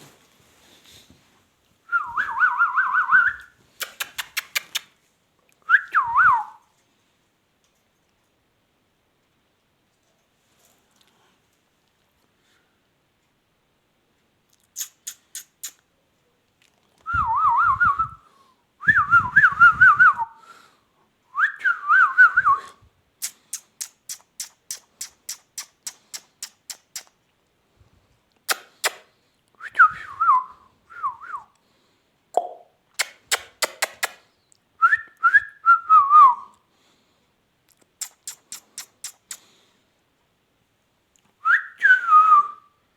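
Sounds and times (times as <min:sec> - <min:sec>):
parakeet quick sharp clicks: 0:03.8 - 0:04.9, 0:23.2 - 0:27.1, 0:28.5 - 0:29.1, 0:33.0 - 0:34.2, 0:37.9 - 0:39.5.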